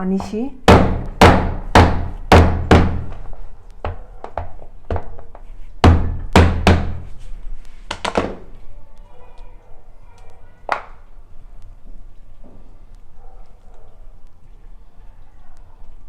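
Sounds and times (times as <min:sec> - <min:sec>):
heavy thuds of beating: 0:00.7 - 0:03.3, 0:05.8 - 0:07.2.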